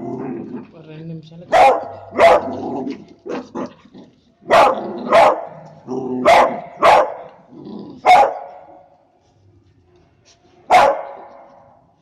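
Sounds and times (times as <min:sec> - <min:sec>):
dog barking sharply: 0:01.5 - 0:02.6, 0:04.5 - 0:05.5, 0:06.2 - 0:07.3, 0:08.1 - 0:08.6, 0:10.7 - 0:11.3.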